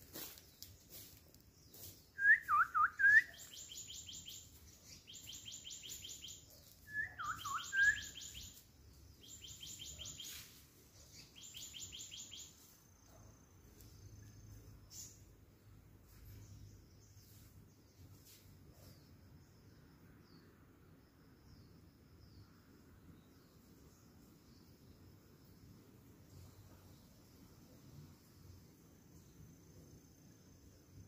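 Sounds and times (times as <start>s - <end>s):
swooping whistled birdsong: 0.1s - 15.4s.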